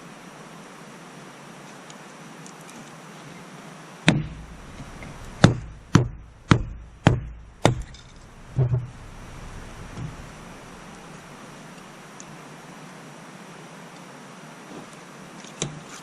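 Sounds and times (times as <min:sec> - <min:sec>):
axe chopping wood: 0:04.1 - 0:08.9.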